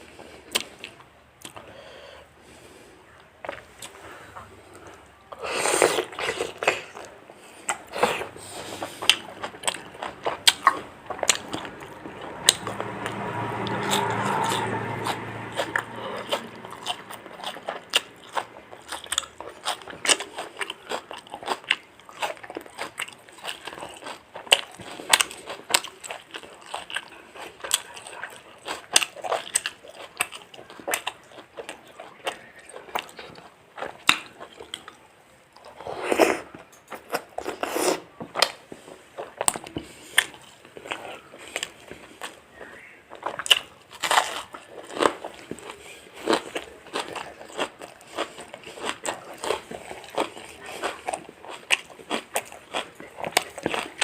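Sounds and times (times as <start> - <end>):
low steady hum: 0.0 - 23.6
biting crunching and chewing: 5.6 - 35.0, 36.4 - 54.0.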